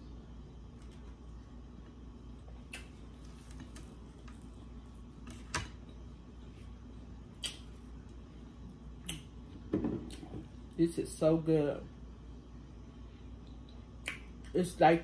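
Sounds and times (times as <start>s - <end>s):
low steady hum: 0.0s - 15.0s
person chewing: 7.3s - 8.2s.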